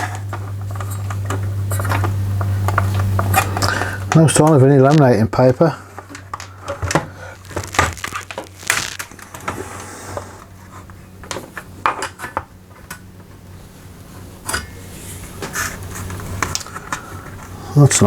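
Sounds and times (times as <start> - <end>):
hands handling plastic casing: 6.4 - 9.1.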